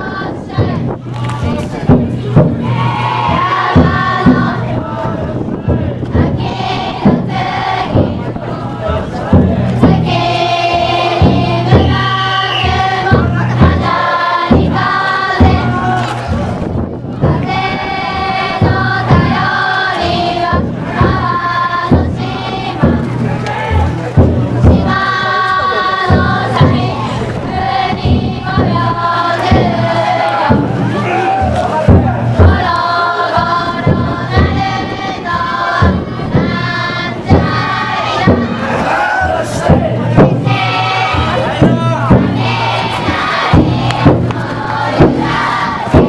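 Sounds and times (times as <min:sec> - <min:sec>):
crowd chanting: 0:00.0 - 0:46.0
taiko drum beating: 0:00.0 - 0:46.0.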